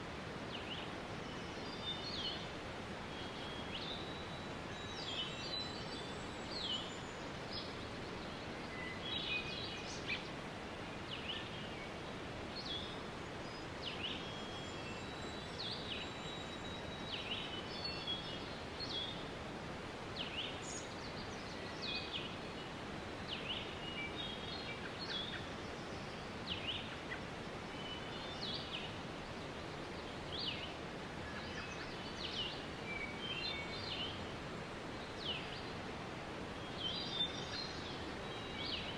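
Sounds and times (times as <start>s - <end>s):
small birds chirping: 36.6s - 38.9s.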